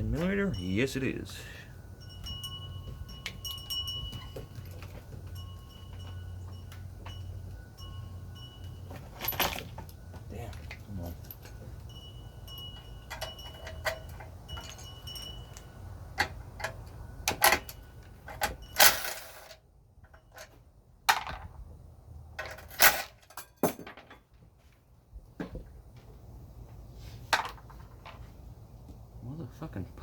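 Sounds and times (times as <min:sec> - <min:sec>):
metallic clicks and clinks: 0:02.0 - 0:20.6.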